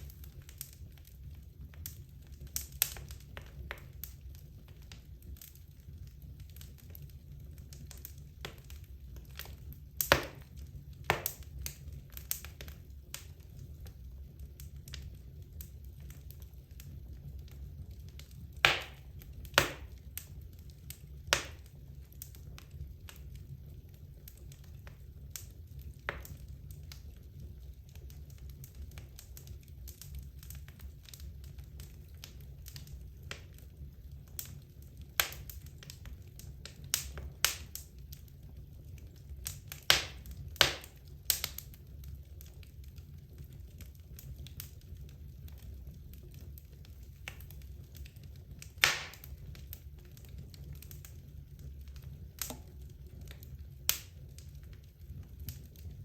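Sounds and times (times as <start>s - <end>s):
logs crackling in a fireplace: 0.0s - 56.0s.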